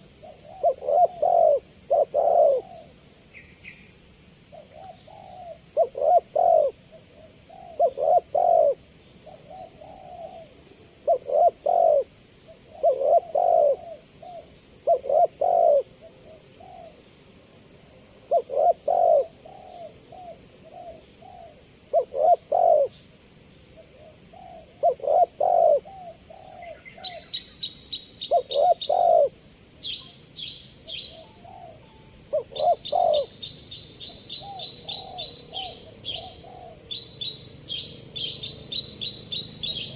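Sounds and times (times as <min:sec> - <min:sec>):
dove cooing: 0:00.0 - 0:03.0, 0:04.5 - 0:17.0, 0:18.2 - 0:23.0, 0:23.8 - 0:39.9
small bird chirping: 0:23.8 - 0:39.9.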